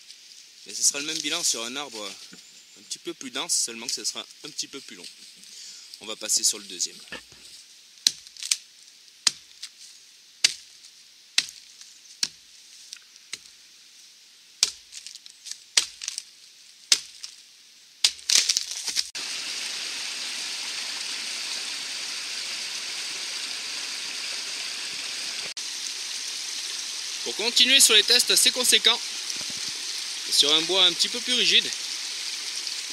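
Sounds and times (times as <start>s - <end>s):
stream running over stones: 0.0s - 7.4s, 18.0s - 32.9s
hatchet chopping wood: 8.0s - 8.4s, 9.2s - 9.5s, 14.6s - 14.9s, 15.8s - 16.1s, 16.9s - 17.2s.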